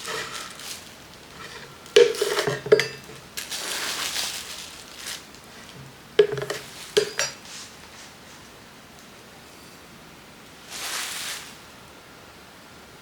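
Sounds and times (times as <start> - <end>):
plastic containers clacking: 0.0 - 7.4
containers rustling and sliding: 0.0 - 8.6, 10.6 - 11.6.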